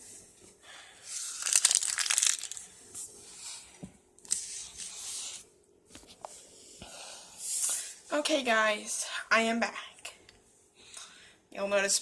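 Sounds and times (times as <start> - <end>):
plastic packaging crinkling: 1.3 - 2.7.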